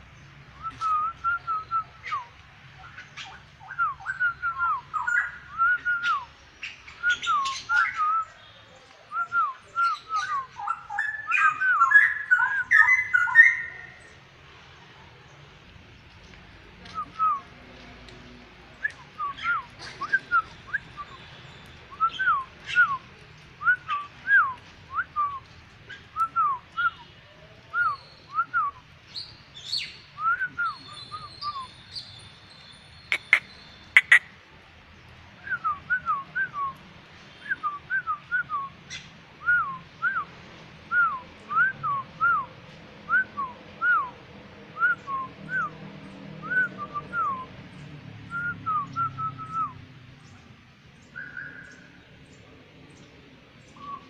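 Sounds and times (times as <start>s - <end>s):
bird whistled calls: 33.0s - 34.3s
sharp clicks: 34.0s - 34.2s.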